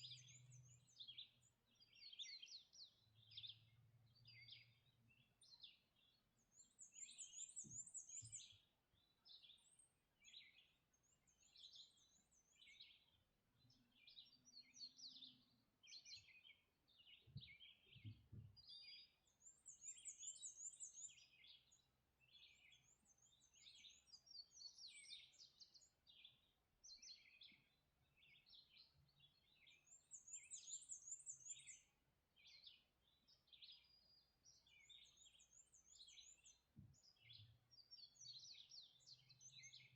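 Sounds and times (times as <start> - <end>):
songbirds chirping and whistling: 0.0 - 39.9.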